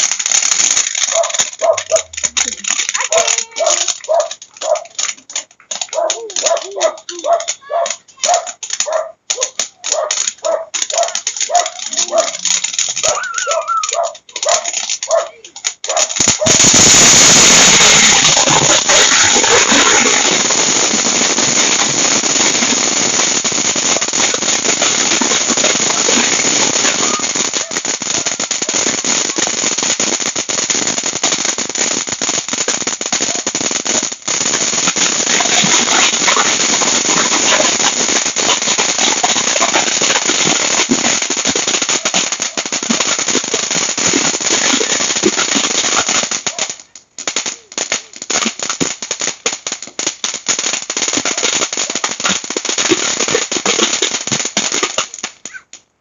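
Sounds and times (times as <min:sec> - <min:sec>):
firework hiss: 0:00.0 - 0:05.2, 0:16.0 - 0:55.4
firework fountain crackling: 0:00.0 - 0:56.0.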